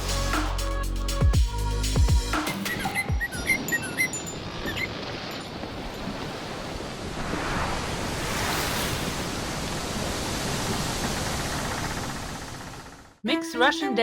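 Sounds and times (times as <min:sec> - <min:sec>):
steady rushing noise: 0:06.4 - 0:13.1.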